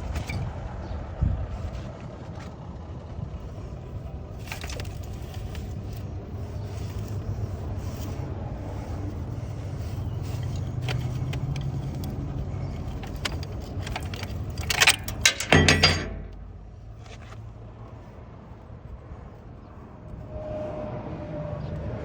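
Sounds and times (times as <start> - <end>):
steady low hum: 2.7 - 20.4
loud crackling and clinking: 3.4 - 16.9
metallic clicks: 7.8 - 17.3.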